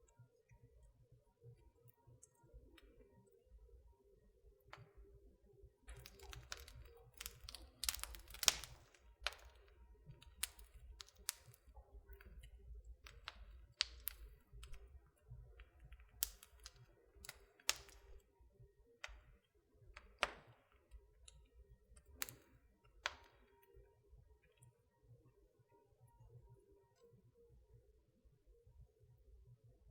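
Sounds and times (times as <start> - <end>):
wood fire crackling and popping: 5.9 - 18.3, 19.0 - 23.6.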